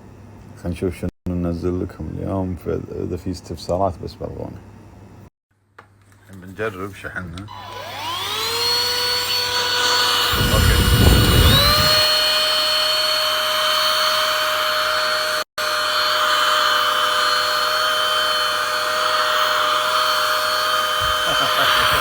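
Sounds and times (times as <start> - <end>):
handheld vacuum cleaner whine: 7.5 - 22.0.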